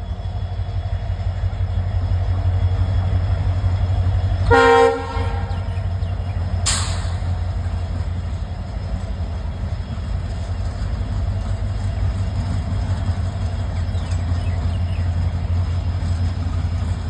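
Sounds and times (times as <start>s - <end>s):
train rumbling: 0.0s - 17.0s
short sharp hiss: 6.7s - 7.4s.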